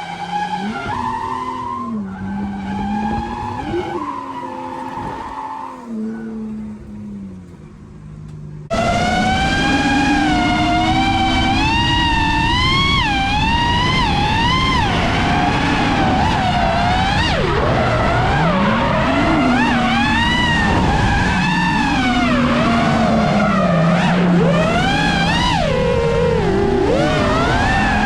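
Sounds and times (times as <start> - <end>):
tyres squealing: 0.0 - 7.8
car engine revving: 0.0 - 28.0.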